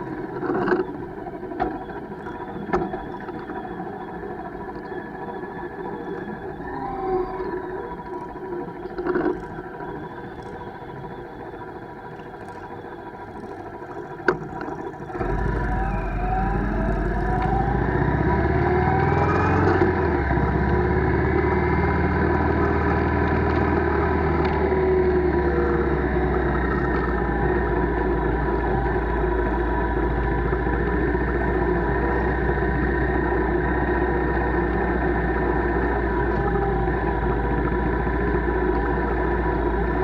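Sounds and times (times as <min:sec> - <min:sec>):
wind and road noise: 0:07.4 - 0:40.0
motorcycle engine running: 0:14.7 - 0:40.0.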